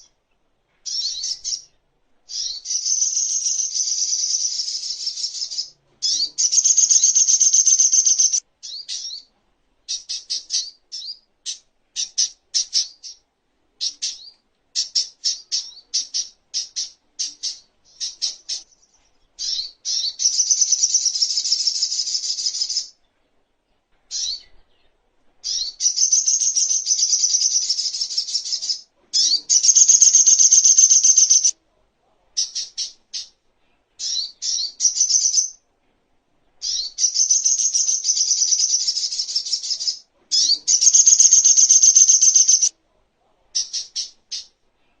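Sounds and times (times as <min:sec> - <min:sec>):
bird chattering trills: 0:02.3 - 0:09.2, 0:25.5 - 0:31.5, 0:36.6 - 0:42.7.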